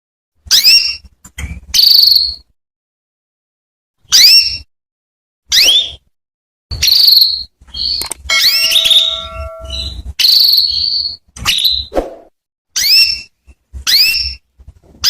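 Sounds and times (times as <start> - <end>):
canary chirping: 0.5 - 2.5, 4.0 - 4.7, 5.5 - 6.1, 6.7 - 11.9, 12.8 - 14.5.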